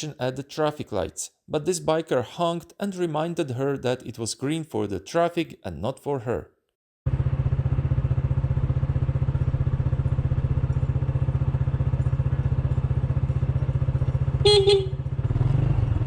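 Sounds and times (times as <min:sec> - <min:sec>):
motorcycle engine running: 0:07.1 - 0:16.0
motorcycle horn honk: 0:14.3 - 0:15.2.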